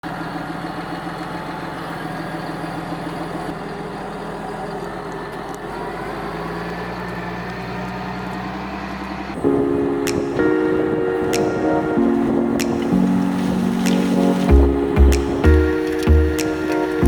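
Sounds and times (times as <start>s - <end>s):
tractor engine running: 0.1s - 8.7s.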